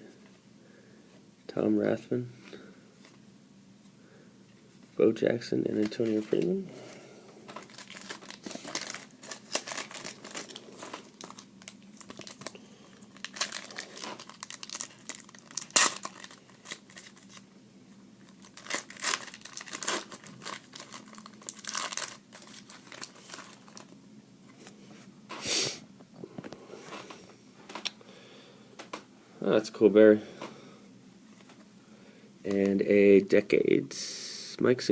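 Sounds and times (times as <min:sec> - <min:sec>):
foil wrappers crinkling and tearing: 0:07.5 - 0:17.4, 0:18.2 - 0:24.0.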